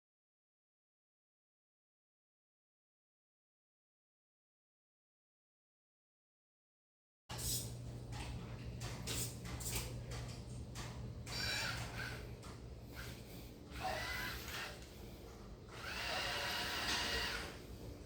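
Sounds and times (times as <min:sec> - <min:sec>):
low electrical hum: 0:07.3 - 0:18.0
small electric motors whirring: 0:11.3 - 0:12.3, 0:12.9 - 0:14.9, 0:15.7 - 0:17.7.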